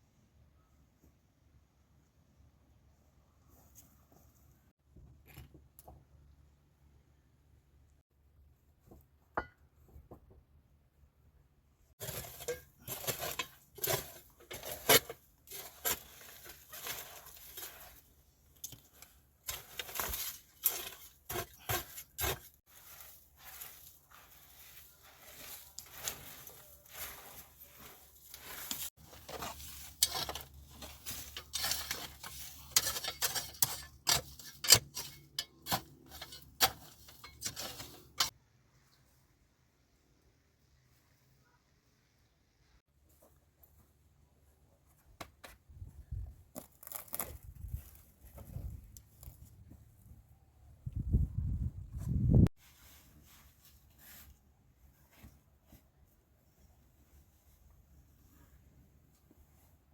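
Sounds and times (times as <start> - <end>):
hard objects clinking and scraping: 12.0 - 38.4.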